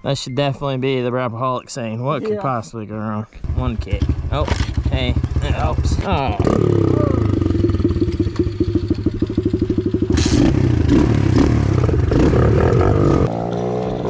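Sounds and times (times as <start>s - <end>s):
small motorbike engine revving: 3.5s - 14.0s.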